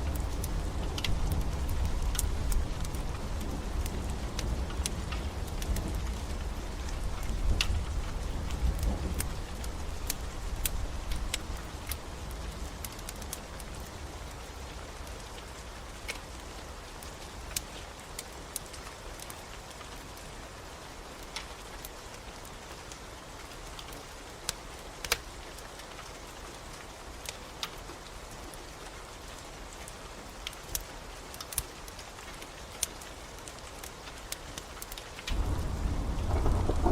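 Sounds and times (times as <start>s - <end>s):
wood fire crackling: 0.0s - 20.1s, 21.2s - 36.9s
steady rain: 0.0s - 36.9s
low rumble: 35.3s - 36.9s.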